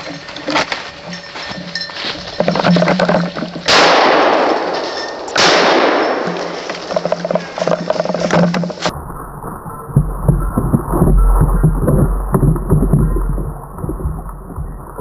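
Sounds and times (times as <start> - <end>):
shotgun shots: 3.7 - 6.8.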